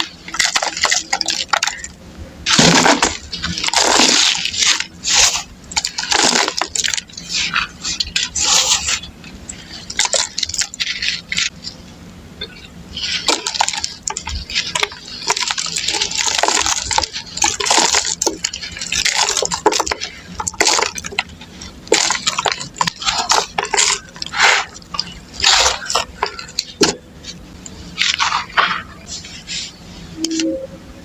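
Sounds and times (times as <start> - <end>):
dirt crumbling: 0.0 - 11.6.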